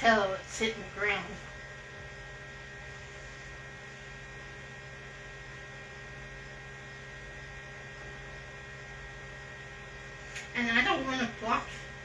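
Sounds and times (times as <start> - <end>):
electrical hum with high tones: 0.0 - 12.0.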